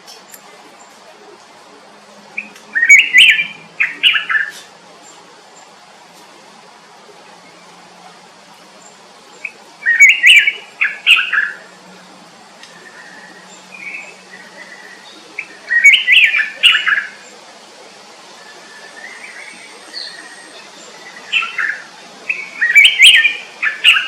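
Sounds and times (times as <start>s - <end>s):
songbird warbling chirps: 2.4s - 5.7s, 8.8s - 17.4s, 18.3s - 24.0s
faint bird calls: 8.8s - 17.5s.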